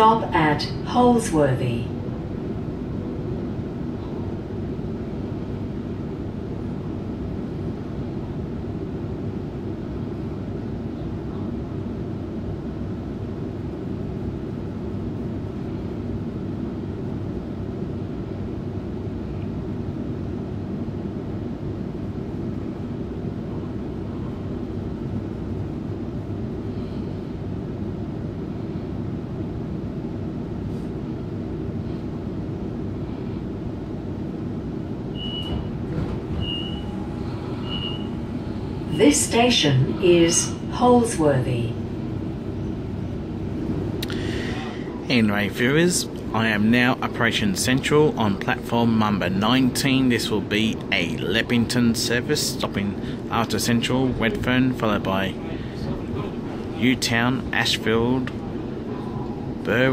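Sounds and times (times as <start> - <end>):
electric train running noise: 34.0 - 47.1.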